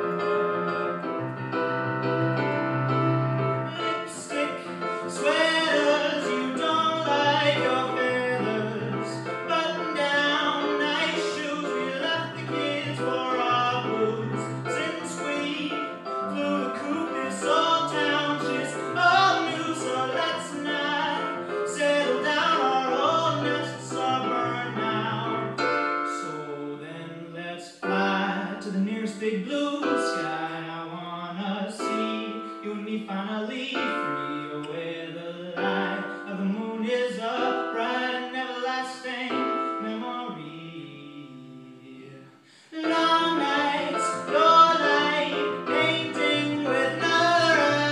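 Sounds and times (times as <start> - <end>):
piano accompaniment: 0.0 - 47.9
man singing: 3.7 - 47.9.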